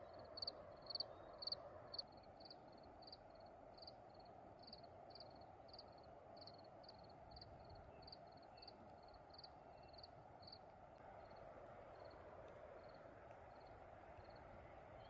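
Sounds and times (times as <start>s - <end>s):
insect chirping: 0.0s - 12.2s, 12.8s - 15.0s
steady low hiss: 0.0s - 15.0s.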